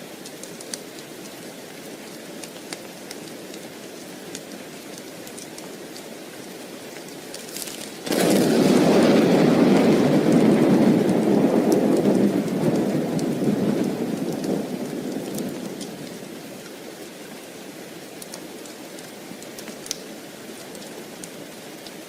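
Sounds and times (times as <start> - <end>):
steady rain: 0.0 - 22.0
thunder rumbling: 8.0 - 16.6.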